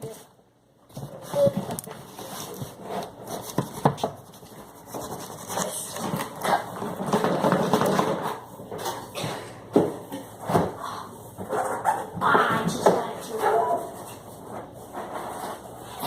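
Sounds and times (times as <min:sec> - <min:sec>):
packaging rustling and scraping: 0:00.9 - 0:09.1, 0:13.3 - 0:16.0.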